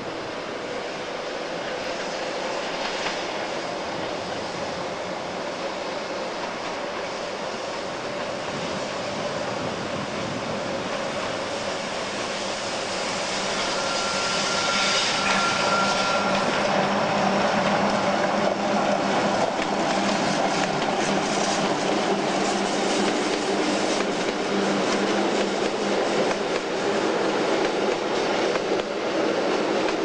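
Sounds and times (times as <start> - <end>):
electric locomotive passing: 0.0 - 30.0
thin whine: 13.4 - 17.0.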